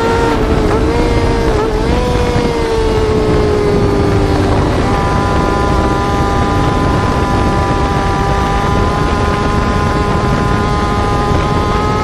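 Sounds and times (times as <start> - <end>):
motorcycle engine running: 0.0 - 12.0
wind on microphone: 0.0 - 12.0.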